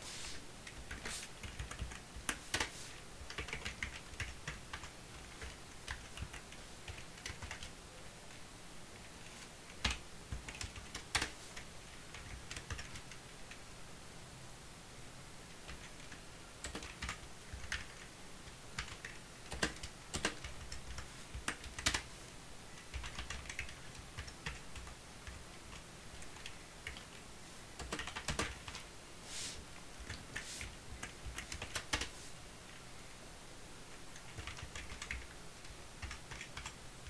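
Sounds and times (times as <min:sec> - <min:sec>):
typing on computer keyboard: 0:00.6 - 0:07.7, 0:09.8 - 0:11.4, 0:12.1 - 0:13.6, 0:15.7 - 0:22.1, 0:22.8 - 0:27.2, 0:27.8 - 0:28.8, 0:31.0 - 0:32.1, 0:34.1 - 0:36.8.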